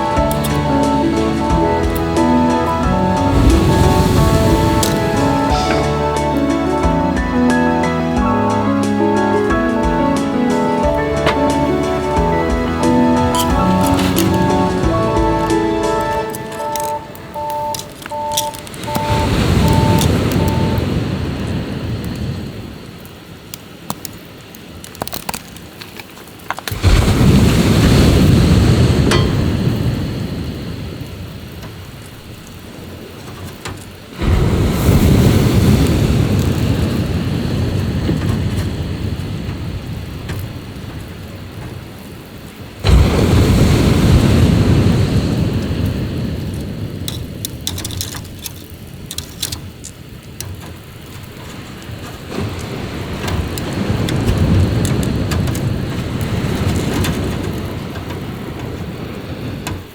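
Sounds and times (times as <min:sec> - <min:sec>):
sea waves breaking on shore: 0:00.0 - 0:24.8, 0:26.7 - 0:59.9
faint scattered clicks: 0:08.2 - 0:21.1, 0:44.0 - 0:59.9.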